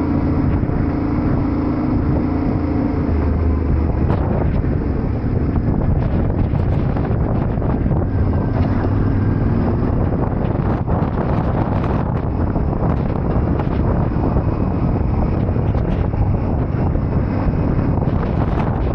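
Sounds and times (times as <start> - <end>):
motorcycle engine running: 0.0 - 18.9
wind buffeting microphone: 0.0 - 18.9.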